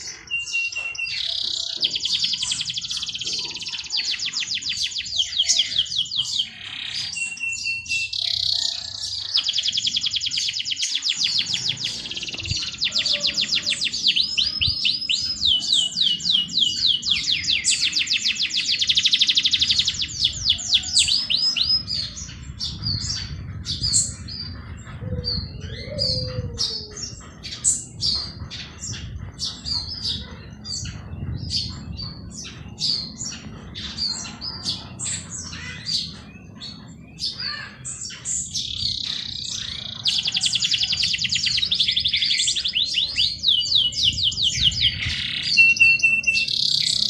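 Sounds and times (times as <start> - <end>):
bird chirps: 0.0 - 47.0
songbirds trilling: 0.0 - 47.0.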